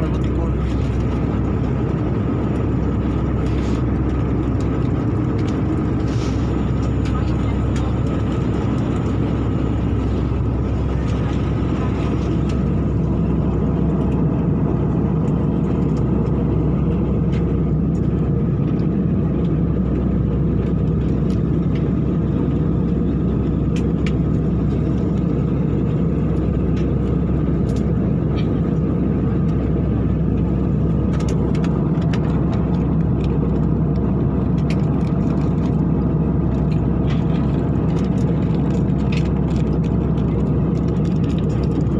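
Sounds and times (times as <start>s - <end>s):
airliner cabin drone: 0.0s - 41.9s.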